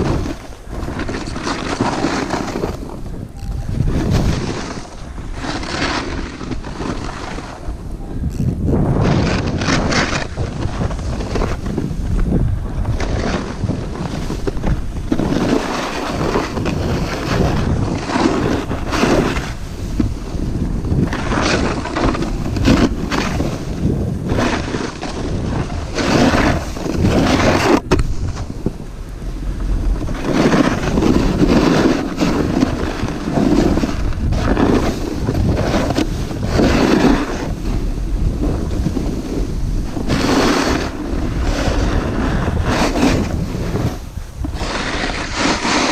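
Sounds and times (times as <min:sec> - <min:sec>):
snowboard edges scraping snow: 0:00.0 - 0:45.9
wind rushing over microphone: 0:00.0 - 0:45.9.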